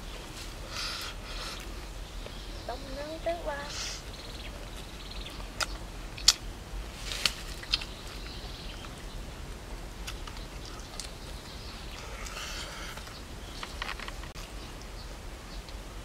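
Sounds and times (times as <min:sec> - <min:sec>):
man chewing with wet smacks: 0:04.6 - 0:06.5, 0:07.5 - 0:15.0.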